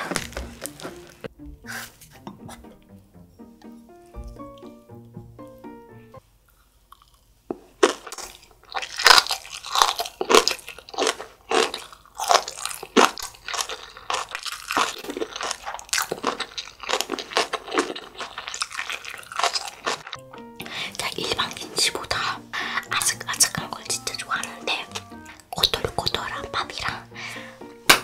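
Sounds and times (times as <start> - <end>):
crunchy chewing: 0.0 - 1.3, 6.5 - 22.2.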